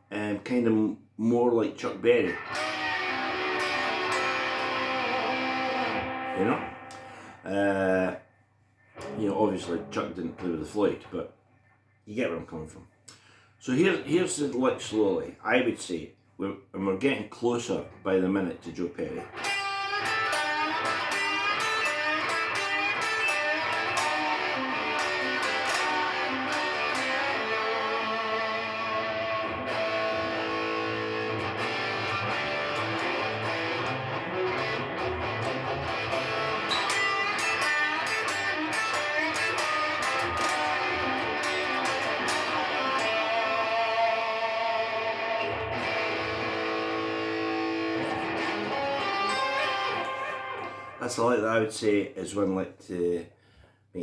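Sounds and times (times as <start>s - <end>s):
electric guitar blues lick: 2.2s - 7.5s, 8.9s - 10.6s, 19.2s - 51.4s.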